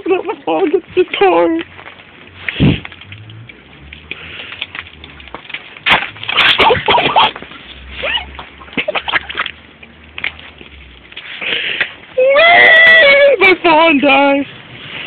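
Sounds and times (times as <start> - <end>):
shoes scraping on ice and slush: 5.8 - 12.0.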